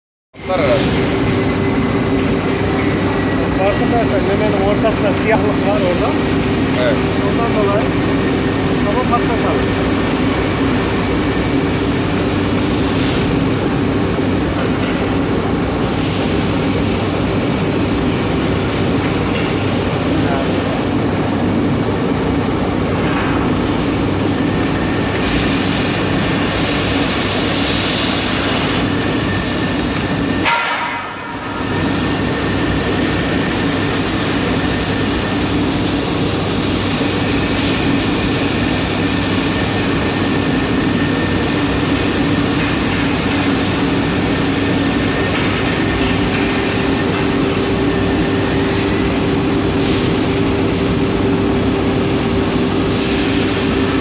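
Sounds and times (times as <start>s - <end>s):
steady machine hum: 0.4s - 54.0s
compressed air rushing through nozzle: 10.0s - 13.7s.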